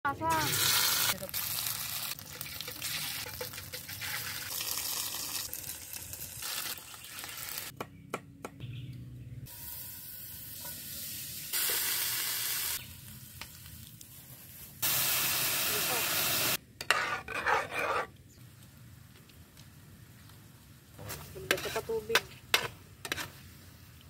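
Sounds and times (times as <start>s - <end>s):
food sizzling in hot oil: 0.3s - 7.7s, 9.5s - 16.6s
metal spatula scraping a pan: 16.8s - 18.1s, 21.0s - 23.4s.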